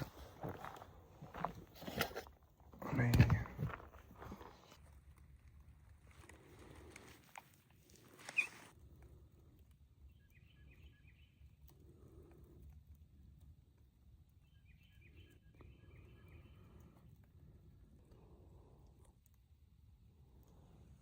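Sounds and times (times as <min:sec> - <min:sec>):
rustling: 0:00.0 - 0:08.7
faint songbird chirps: 0:09.9 - 0:12.2, 0:14.2 - 0:17.2.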